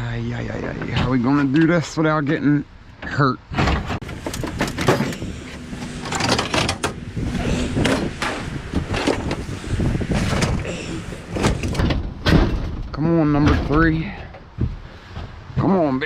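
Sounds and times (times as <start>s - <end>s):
sheet metal clanking and scraping: 3.0s - 15.5s.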